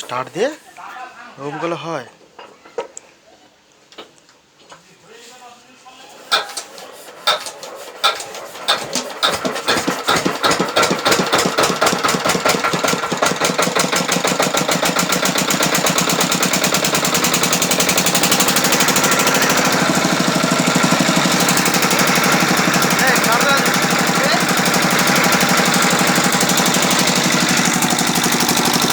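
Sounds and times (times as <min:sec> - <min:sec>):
small engine starting and running: 0:06.1 - 0:28.9.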